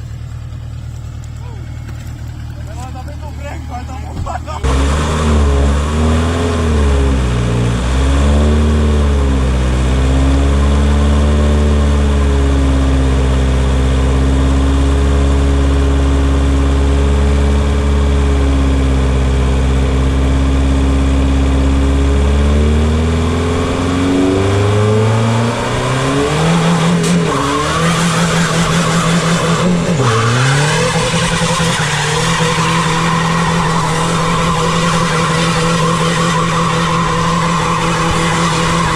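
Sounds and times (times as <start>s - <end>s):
diesel engine revving: 0.0s - 38.9s
tyre squeal and skidding: 25.5s - 38.9s.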